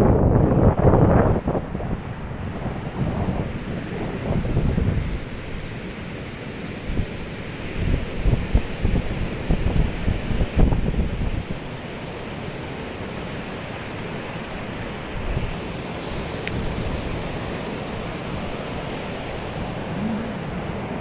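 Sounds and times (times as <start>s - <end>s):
wind buffeting microphone: 0.0s - 5.7s, 6.9s - 11.6s, 16.5s - 21.0s
ocean surf washing onto beach: 0.1s - 21.0s.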